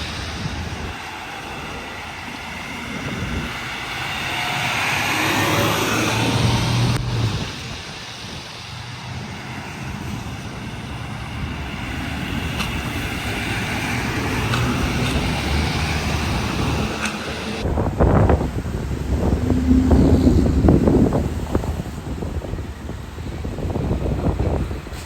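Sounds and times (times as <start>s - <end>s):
trucks driving past: 0.0s - 24.9s.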